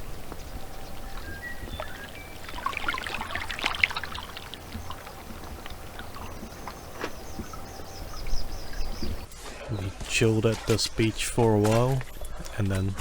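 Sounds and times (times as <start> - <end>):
water trickling among stones: 0.8 - 9.0.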